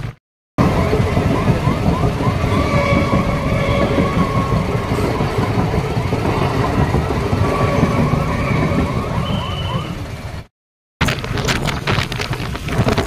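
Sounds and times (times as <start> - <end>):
road noise: 0.0 - 13.0
wind rumble: 0.6 - 13.0
vehicle horns: 2.4 - 5.2, 7.4 - 10.0.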